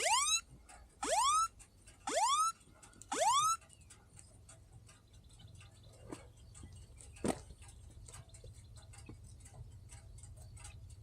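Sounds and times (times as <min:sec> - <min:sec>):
rising whoop alarm tones: 0:00.0 - 0:01.5, 0:02.1 - 0:03.6
faint clicks: 0:02.6 - 0:11.0.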